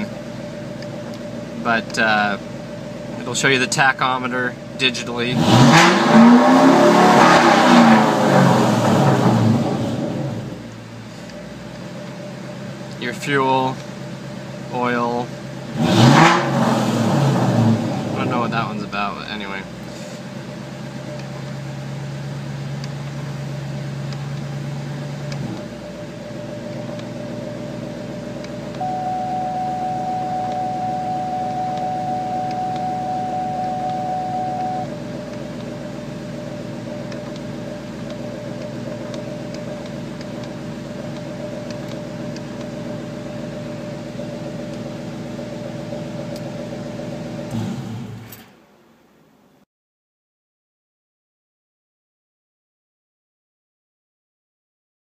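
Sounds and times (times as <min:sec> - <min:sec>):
car engine idling: 0:00.0 - 0:05.6, 0:08.1 - 0:15.8, 0:17.6 - 0:48.4
steady high tone: 0:28.8 - 0:35.0.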